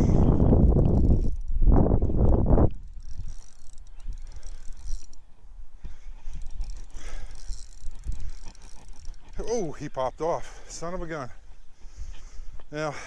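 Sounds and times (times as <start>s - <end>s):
wind rumble on microphone: 0.0s - 9.4s
fishing reel ticking: 0.0s - 12.9s.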